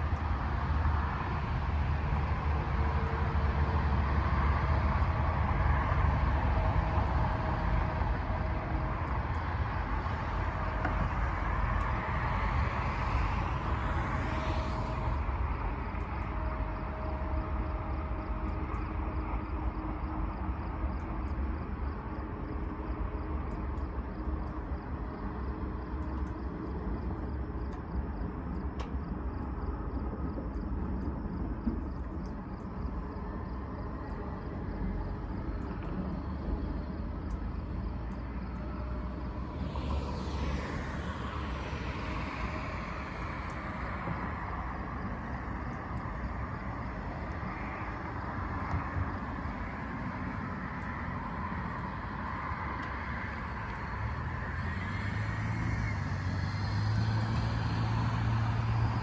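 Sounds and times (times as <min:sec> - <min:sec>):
low outdoor rumble: 0:00.0 - 0:59.0
road vehicle passing: 0:38.2 - 0:46.0, 0:48.9 - 0:59.0.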